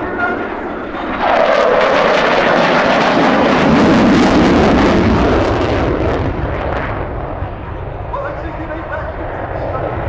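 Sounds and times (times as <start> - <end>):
fighter jet passing: 0.0 - 10.0.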